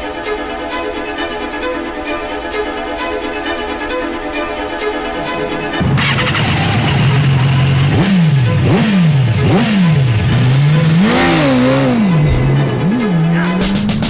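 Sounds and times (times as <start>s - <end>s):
background music: 0.0s - 14.0s
motorcycle engine revving: 5.0s - 14.0s.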